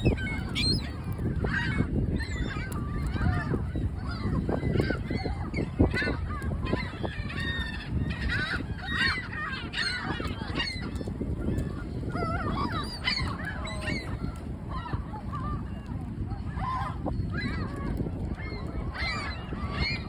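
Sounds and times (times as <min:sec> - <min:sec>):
gulls squawking: 0:00.0 - 0:15.7.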